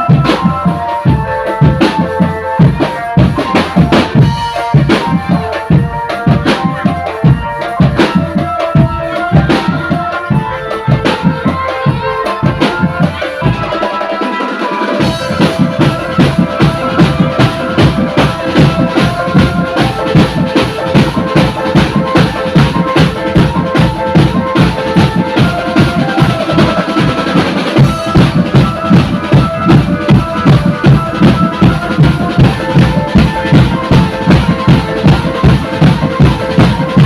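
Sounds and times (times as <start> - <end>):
bass drums beating: 0.0 - 13.8, 15.0 - 37.0
street drum band playing: 0.0 - 37.0.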